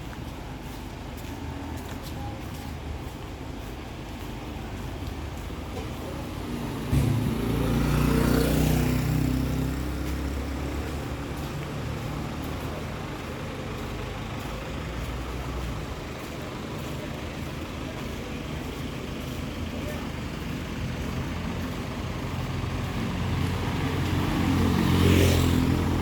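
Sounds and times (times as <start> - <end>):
street traffic noise: 0.0 - 26.0
vehicle engine passing by: 5.9 - 26.0.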